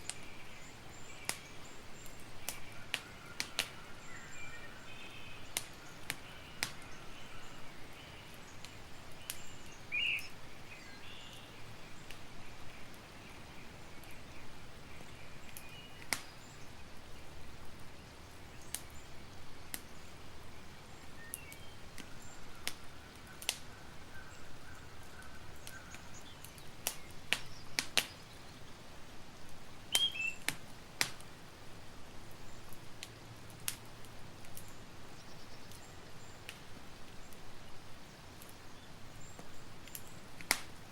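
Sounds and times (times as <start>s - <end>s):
campfire crackling: 0.0s - 40.9s
bird chirps: 0.1s - 12.1s, 29.9s - 30.5s.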